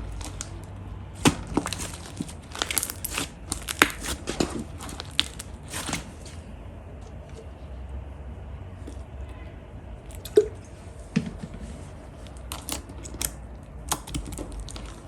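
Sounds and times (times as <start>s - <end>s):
slime crackling and popping: 0.0s - 6.3s, 12.2s - 15.0s.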